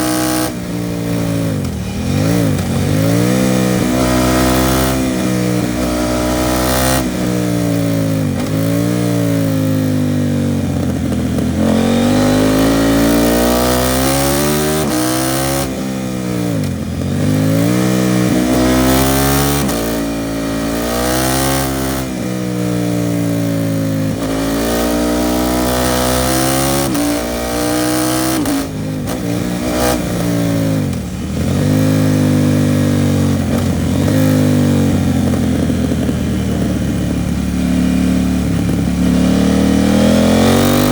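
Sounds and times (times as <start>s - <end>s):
motorcycle engine revving through gears: 0.0s - 40.9s.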